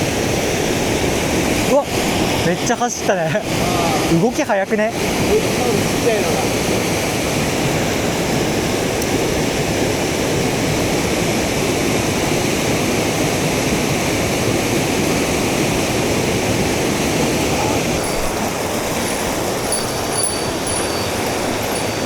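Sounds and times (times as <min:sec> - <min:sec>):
stream rushing over rocks: 0:00.0 - 0:22.0.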